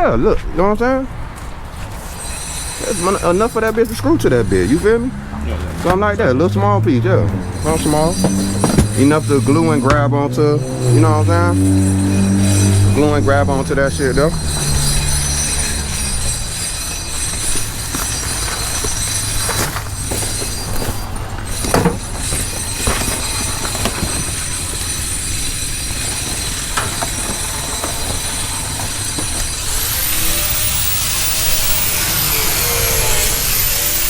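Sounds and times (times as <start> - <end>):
power tool grinding: 1.3 - 34.0
knocks: 8.0 - 10.1.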